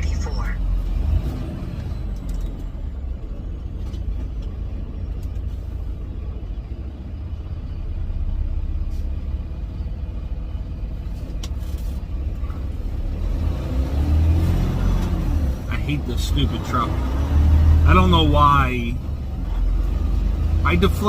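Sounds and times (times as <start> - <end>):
truck engine and road noise: 0.0 - 21.0.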